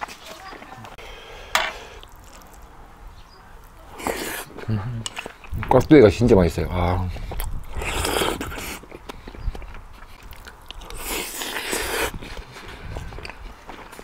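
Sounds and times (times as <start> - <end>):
person chewing crunchy food: 1.7 - 2.7, 3.9 - 5.6, 7.2 - 14.0.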